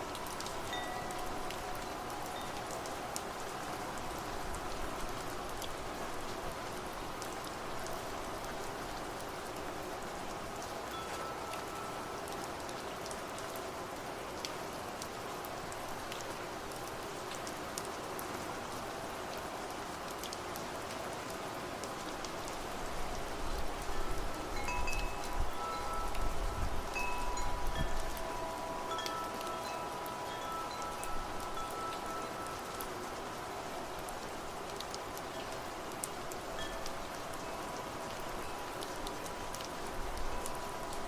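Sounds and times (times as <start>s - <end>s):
steady rain: 0.0s - 41.0s
wind chimes ringing: 0.1s - 3.9s, 10.9s - 12.3s, 23.9s - 33.2s, 36.5s - 38.7s.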